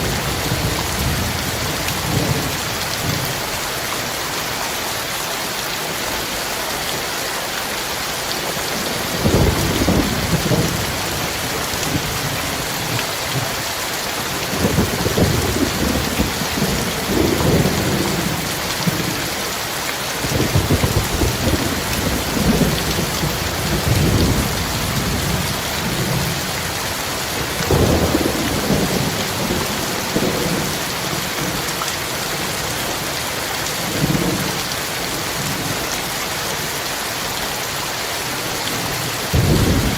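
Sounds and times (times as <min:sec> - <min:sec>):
heavy rain pouring: 0:00.0 - 0:39.9
thunder rumbling: 0:09.0 - 0:13.0, 0:14.4 - 0:19.1, 0:20.3 - 0:26.6, 0:27.4 - 0:31.6, 0:39.3 - 0:39.9.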